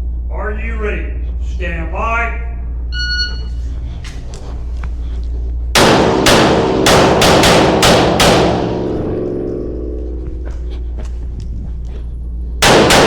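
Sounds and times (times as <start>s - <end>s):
pistol shots ringing: 12.6s - 13.0s.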